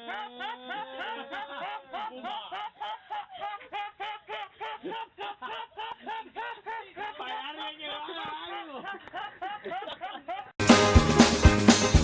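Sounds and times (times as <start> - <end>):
fast bouncy music: 10.6 - 12.0.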